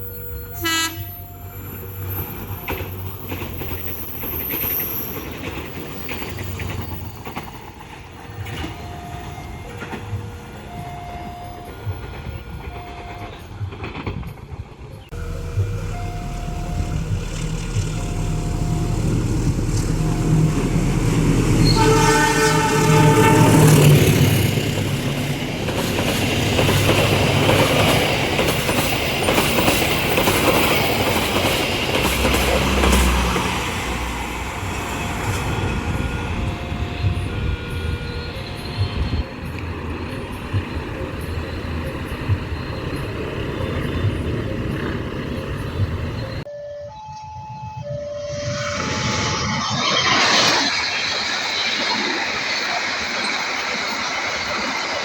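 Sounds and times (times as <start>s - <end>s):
diesel train engine running: 0.0s - 14.0s, 14.7s - 46.5s
train horn: 0.2s - 1.6s, 15.1s - 25.4s, 32.2s - 39.3s
low thumps: 15.1s - 21.6s.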